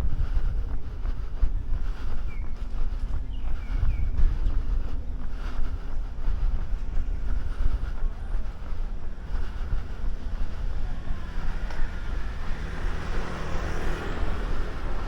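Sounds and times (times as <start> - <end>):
wind buffeting microphone: 0.0 - 15.0
bird chirps: 2.2 - 4.2.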